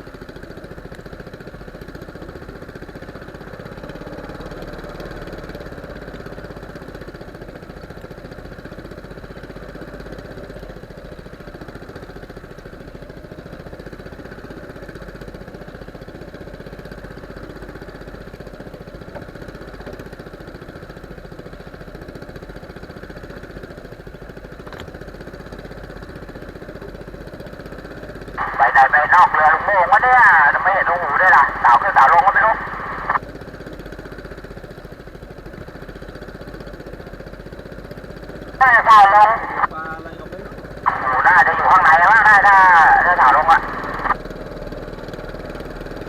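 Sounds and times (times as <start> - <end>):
boat engine running: 42.5 - 46.0.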